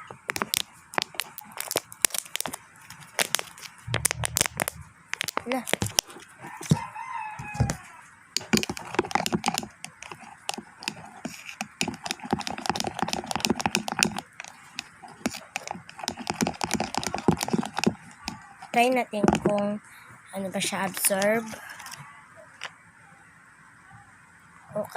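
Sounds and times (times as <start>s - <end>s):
glue squelching in a bowl: 0.0s - 6.8s, 8.4s - 19.7s.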